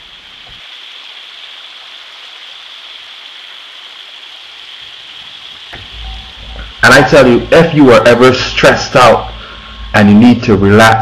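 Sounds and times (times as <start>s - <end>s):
stream rushing over waterfalls: 0.0s - 8.7s.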